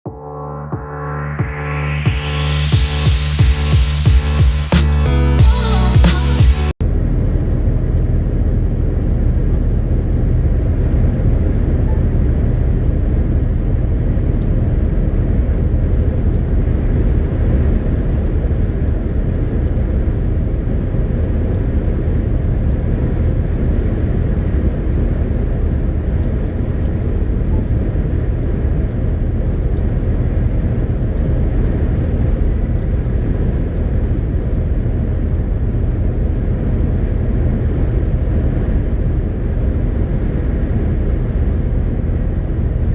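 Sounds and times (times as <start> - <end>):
truck diesel engine rumbling: 5.2 - 39.3.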